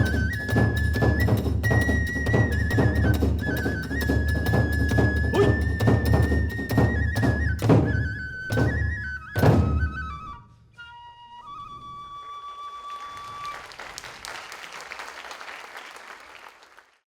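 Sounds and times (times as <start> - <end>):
drum beats: 0.0 - 10.0
bamboo flute melody: 0.0 - 13.8.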